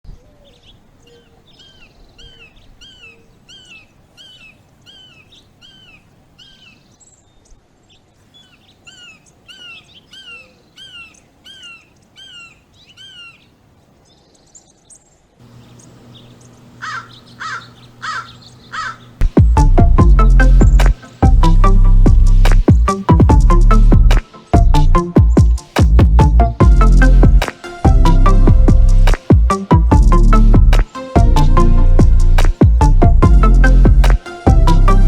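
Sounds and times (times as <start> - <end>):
bird calling: 0.1 - 21.9
steady low hum: 15.4 - 25.1, 25.8 - 35.0.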